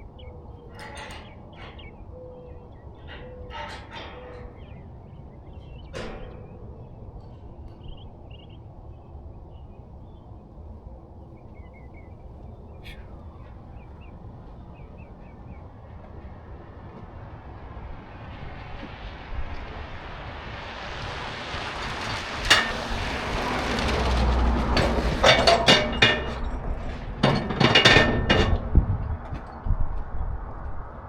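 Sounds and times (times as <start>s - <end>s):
small birds chirping: 0.0s - 16.3s
low steady rumble: 6.0s - 31.0s.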